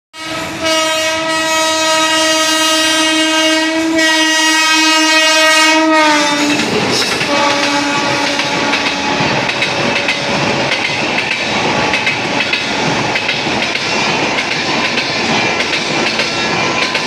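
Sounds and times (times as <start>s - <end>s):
locomotive horn blast: 0.2s - 9.4s
train coaches clattering on rails: 0.2s - 17.0s.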